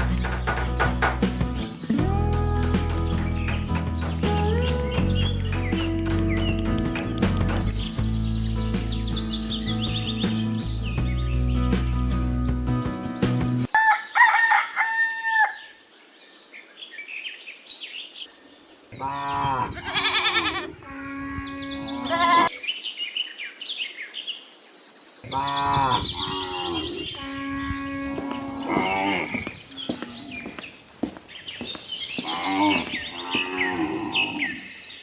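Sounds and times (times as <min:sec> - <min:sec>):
small birds chirping: 0:00.0 - 0:13.7, 0:15.7 - 0:35.0
rooster crowing: 0:13.7 - 0:15.8.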